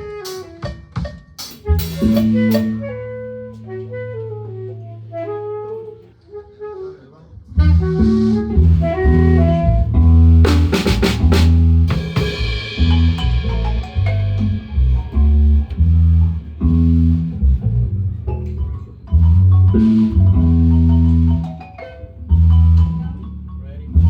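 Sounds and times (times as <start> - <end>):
drum fill: 0.0 - 3.1, 8.0 - 21.6
marimba band playing: 0.0 - 6.0, 7.6 - 24.0
cymbal crash: 11.9 - 15.4.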